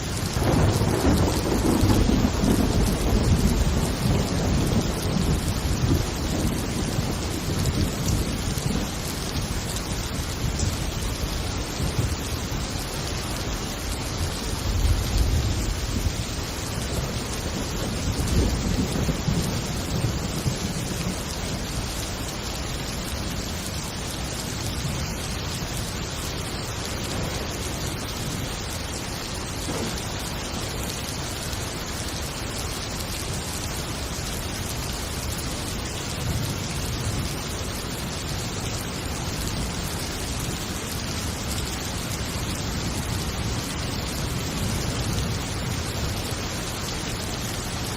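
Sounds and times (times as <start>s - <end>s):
heavy rain: 0.0s - 47.9s
rolling thunder rumbles: 0.1s - 31.1s.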